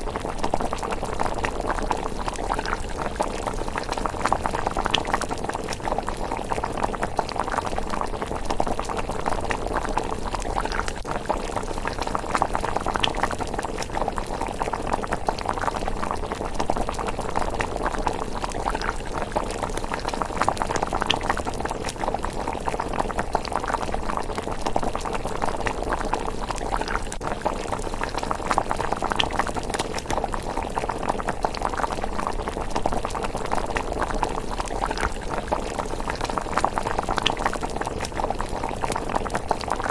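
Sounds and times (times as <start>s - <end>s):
porridge bubbling in a pot: 0.0s - 39.9s.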